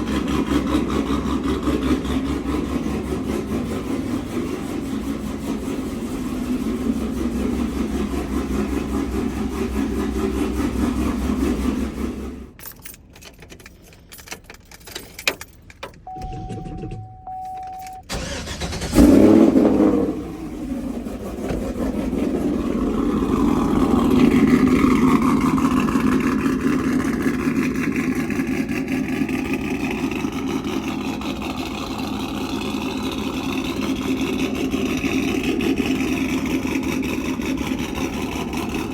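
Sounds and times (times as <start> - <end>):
engine cranking and starting: 0.0 - 38.9
pickup engine idling: 0.0 - 38.9
steady beep: 16.1 - 18.1.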